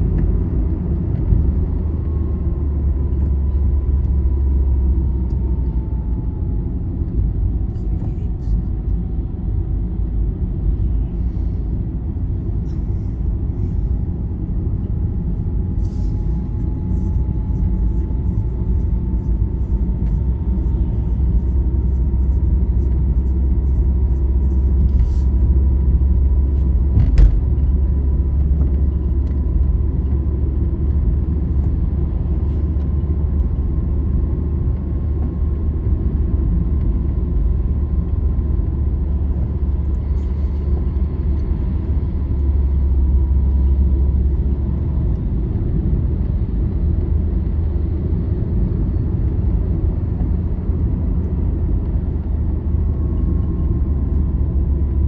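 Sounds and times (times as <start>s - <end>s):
vehicle road and engine rumble: 0.0s - 55.0s.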